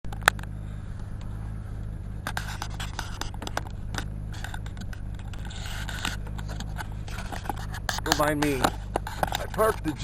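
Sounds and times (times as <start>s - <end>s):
car engine idling: 0.1s - 10.0s
clicks and scrapes of handling: 2.2s - 10.0s
loud click: 7.9s - 8.3s.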